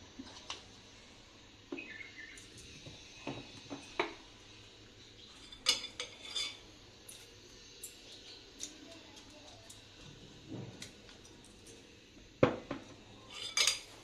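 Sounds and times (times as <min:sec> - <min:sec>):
spoon clinking against dishes: 0:05.4 - 0:08.2, 0:13.3 - 0:13.9.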